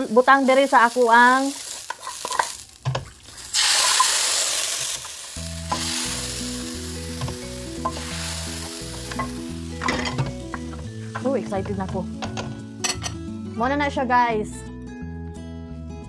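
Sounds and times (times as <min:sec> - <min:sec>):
beef sizzling in oil: 0:00.0 - 0:13.2
spoon scraping and stirring: 0:01.8 - 0:02.6.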